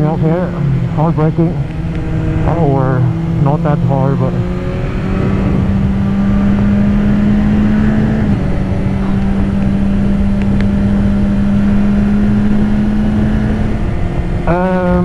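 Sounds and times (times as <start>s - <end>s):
heavy wind noise: 0.0s - 15.0s
motorcycle engine running: 0.0s - 15.0s.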